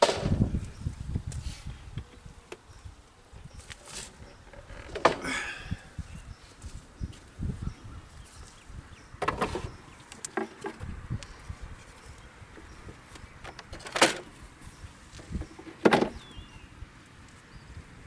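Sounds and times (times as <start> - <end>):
wind rumble on microphone: 0.0 - 18.0
wooden boxes knocking and clattering: 9.2 - 9.7, 15.4 - 16.2.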